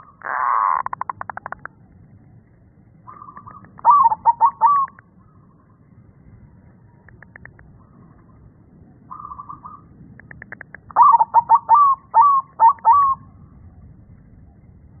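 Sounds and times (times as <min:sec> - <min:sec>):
dove trilling: 0:00.0 - 0:01.7, 0:03.1 - 0:05.5, 0:09.1 - 0:13.3
dove cooing: 0:03.1 - 0:05.0, 0:10.4 - 0:13.3
dove clicks: 0:07.0 - 0:07.7, 0:10.2 - 0:11.1.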